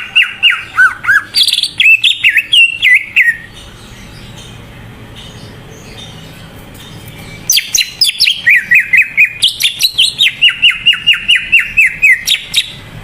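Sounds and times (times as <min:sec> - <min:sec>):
bird whistling rapid notes: 0:07.5 - 0:12.8.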